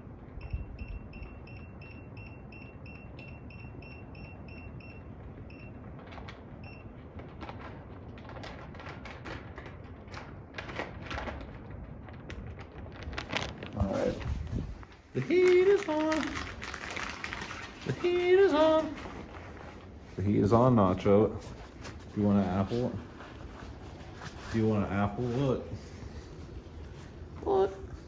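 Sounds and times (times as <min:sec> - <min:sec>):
control panel beeps: 0:00.4 - 0:05.8.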